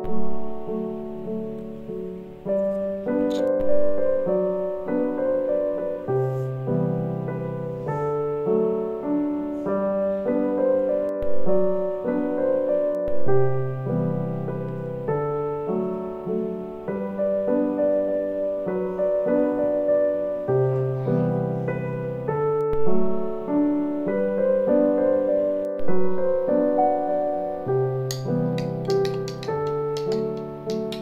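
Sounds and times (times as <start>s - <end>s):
gentle piano music: 0.0s - 31.0s
sharp clicks: 28.1s - 31.0s.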